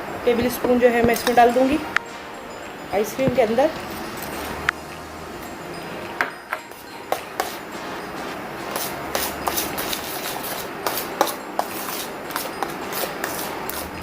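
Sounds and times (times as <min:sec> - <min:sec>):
utensil scraping a bowl: 0:06.7 - 0:14.0.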